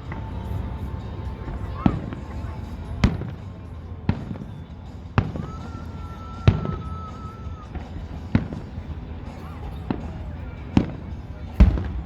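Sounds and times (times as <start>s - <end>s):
high whistle: 0.0s - 8.5s
fireworks bangs: 0.0s - 12.0s
low background rumble: 0.0s - 12.0s.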